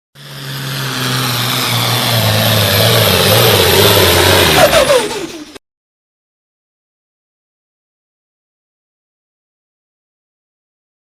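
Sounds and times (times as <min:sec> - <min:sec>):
diesel truck engine under load: 0:00.2 - 0:05.6
loud rushing exhaust: 0:00.2 - 0:05.6.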